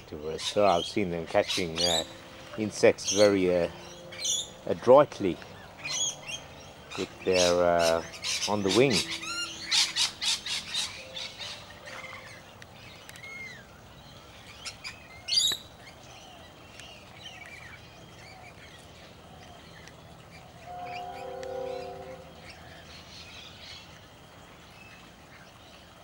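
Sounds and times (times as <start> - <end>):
wild birds squawking and chirping: 0.2 - 16.5.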